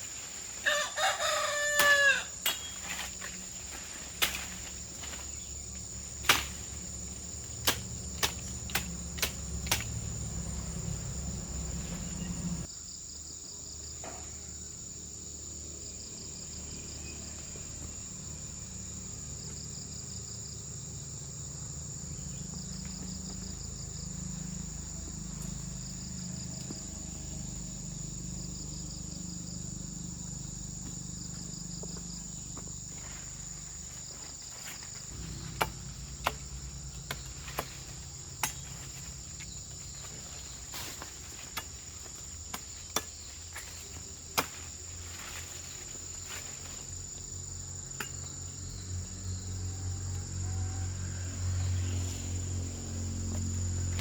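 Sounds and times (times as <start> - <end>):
insects shrilling: 0.0 - 12.7
low hum: 35.0 - 41.5
sharp knocks: 35.4 - 37.8.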